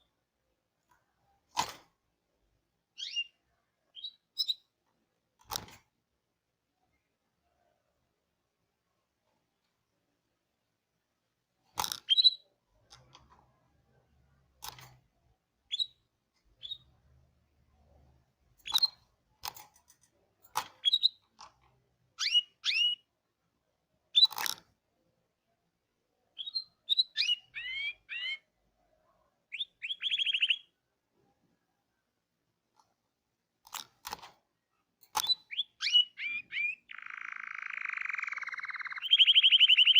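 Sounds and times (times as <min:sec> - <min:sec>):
canary chirping and whistling: 0:03.0 - 0:04.7, 0:12.0 - 0:12.5, 0:15.7 - 0:17.0, 0:18.6 - 0:19.0, 0:20.8 - 0:21.3, 0:22.2 - 0:23.1, 0:24.1 - 0:24.5, 0:26.3 - 0:28.6, 0:29.5 - 0:30.8, 0:35.1 - 0:39.9
canary trill: 0:03.0 - 0:04.7, 0:22.2 - 0:23.1, 0:26.3 - 0:28.8, 0:29.4 - 0:30.9, 0:35.1 - 0:39.9.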